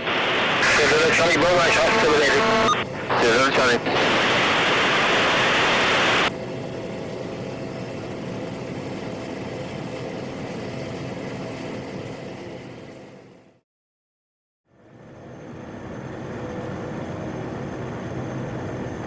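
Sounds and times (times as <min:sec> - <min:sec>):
radio static hiss: 0:00.0 - 0:06.3
turboprop engine drone: 0:00.0 - 0:13.6, 0:14.7 - 0:19.0.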